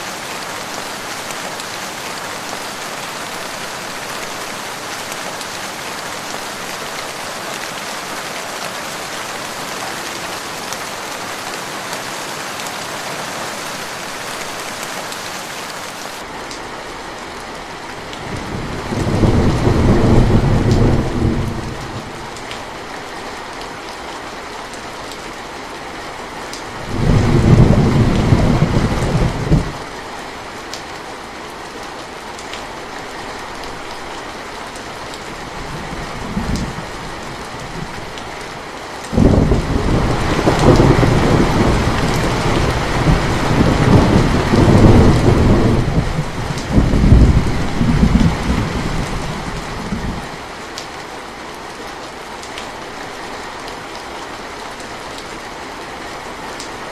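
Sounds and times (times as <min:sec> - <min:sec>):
steady rain falling: 0:00.0 - 0:56.9
thunder rolling: 0:39.2 - 0:50.2.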